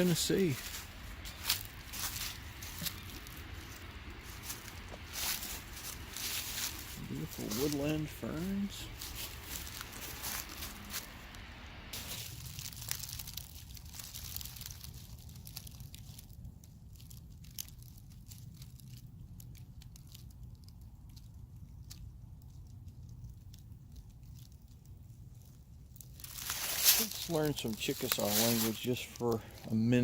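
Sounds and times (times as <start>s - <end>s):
footsteps crunching on dry leaves: 0.0s - 16.3s, 26.1s - 30.0s.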